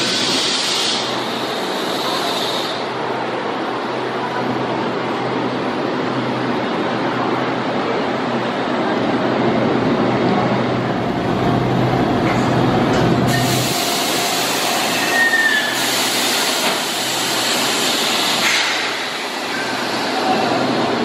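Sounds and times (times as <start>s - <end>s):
high squeal: 14.7s - 15.9s.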